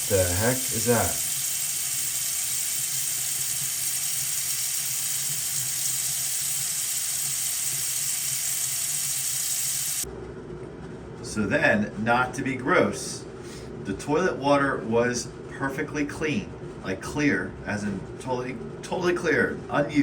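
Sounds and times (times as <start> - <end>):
faucet running into sink: 0.0 - 10.0.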